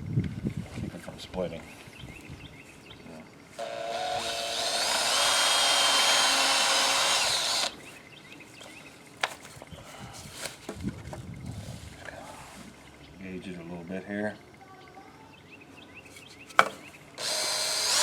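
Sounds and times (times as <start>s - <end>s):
power drill boring into wood: 3.6s - 7.8s, 17.2s - 18.0s.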